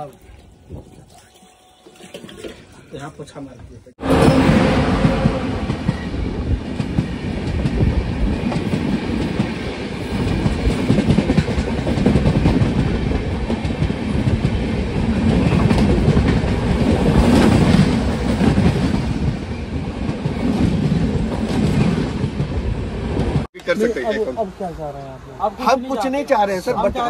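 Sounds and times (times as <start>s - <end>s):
train coaches rumbling past: 4.0s - 23.5s.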